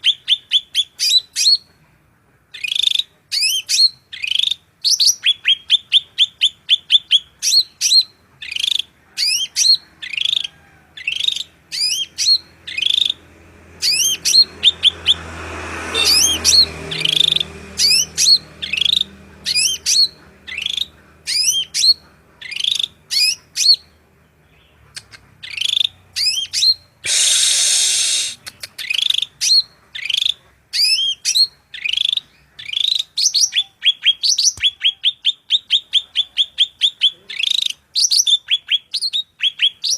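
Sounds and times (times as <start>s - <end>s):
songbird singing: 0.0s - 1.8s, 2.5s - 39.9s
harsh hissing burst: 27.0s - 28.4s.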